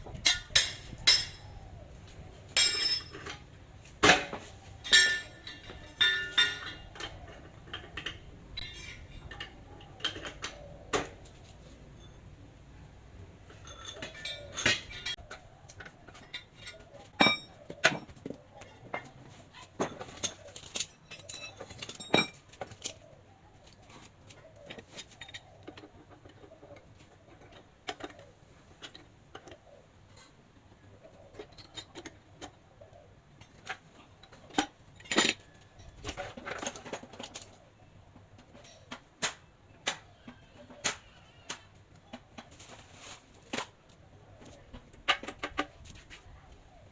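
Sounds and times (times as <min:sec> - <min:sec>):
metal parts and tools clinking: 0:00.0 - 0:01.8, 0:02.5 - 0:12.4, 0:13.4 - 0:32.7, 0:33.3 - 0:39.1.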